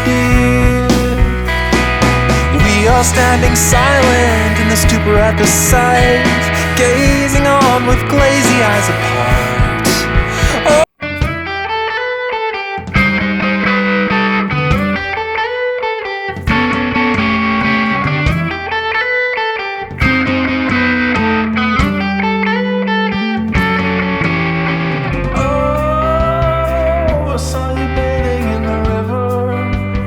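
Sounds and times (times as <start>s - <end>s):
bass line: 0.0s - 11.9s, 12.8s - 15.4s, 16.4s - 18.9s, 19.9s - 30.0s
distorted electric guitar: 0.0s - 30.0s
strong drum hit: 0.3s - 11.4s.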